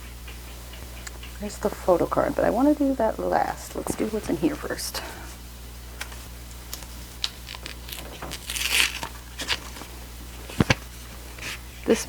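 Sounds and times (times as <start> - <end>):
envelope crinkling and tearing: 6.7 - 11.0.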